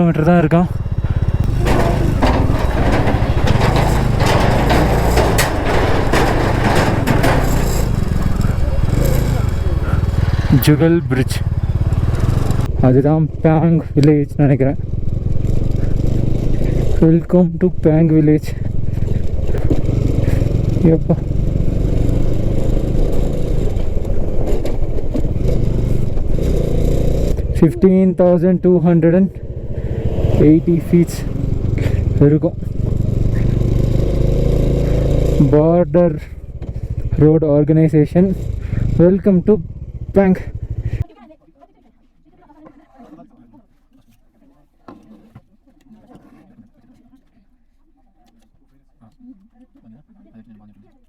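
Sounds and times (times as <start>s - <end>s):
motorcycle engine running: 0.0s - 41.0s
knocks and rattles: 0.4s - 12.8s, 18.6s - 27.7s, 29.4s - 35.5s.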